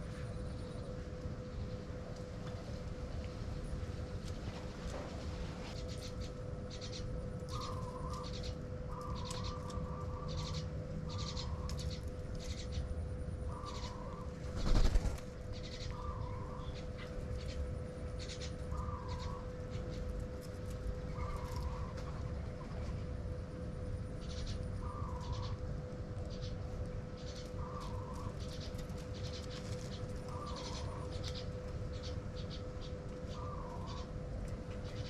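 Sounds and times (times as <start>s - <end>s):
faint steady hum: 0.0s - 35.0s
small birds chirping: 5.7s - 12.9s, 13.5s - 20.2s, 21.0s - 22.2s, 24.2s - 25.6s, 26.2s - 35.0s.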